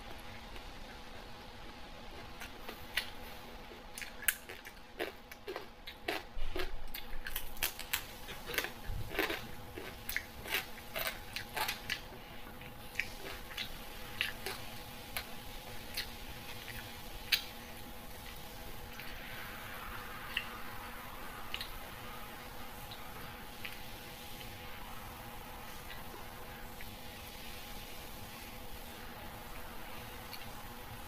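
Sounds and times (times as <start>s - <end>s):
faint steady hum: 0.0s - 31.0s
wet chewing: 2.0s - 19.2s, 21.5s - 21.8s
crunchy bites: 3.8s - 12.1s.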